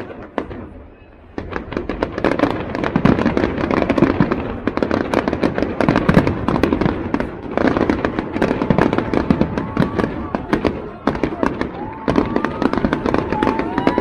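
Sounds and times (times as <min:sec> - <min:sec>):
fireworks crackling and banging: 0:00.0 - 0:14.0.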